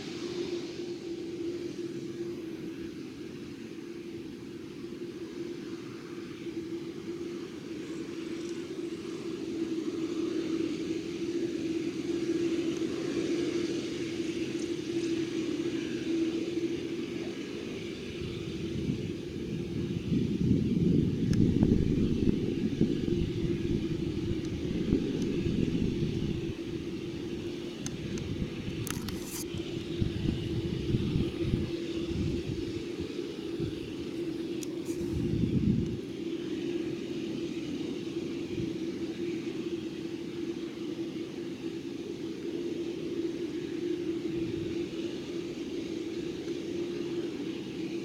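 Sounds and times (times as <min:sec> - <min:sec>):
faint steady hum: 0:00.0 - 0:48.0
jet engines droning: 0:00.0 - 0:48.0.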